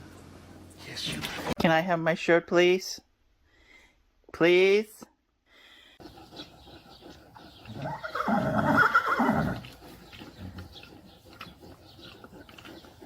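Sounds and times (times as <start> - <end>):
animal whinny-like call: 7.7 - 9.7.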